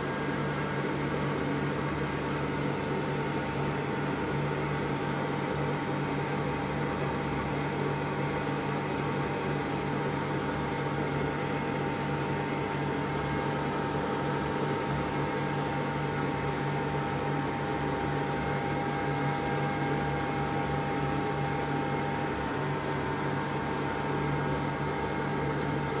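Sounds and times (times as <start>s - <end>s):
steady hum: 8.3s - 26.0s.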